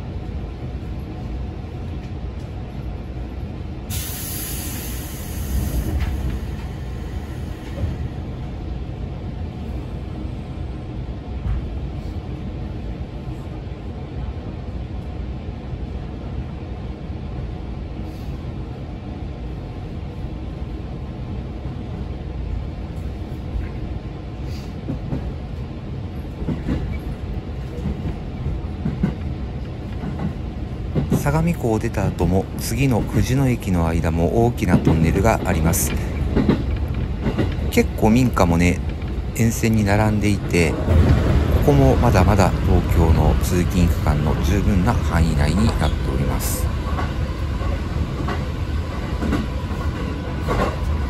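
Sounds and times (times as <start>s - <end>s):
train wheels rumbling: 0.2s - 10.6s, 24.4s - 51.0s.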